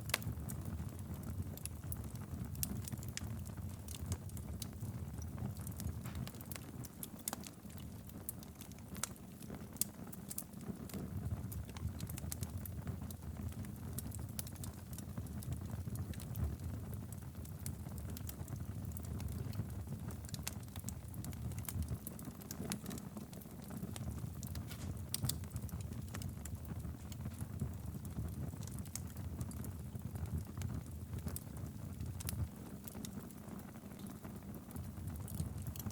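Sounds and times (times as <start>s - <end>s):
fire crackling and popping: 0.0s - 35.9s
fire rumbling: 0.0s - 35.9s.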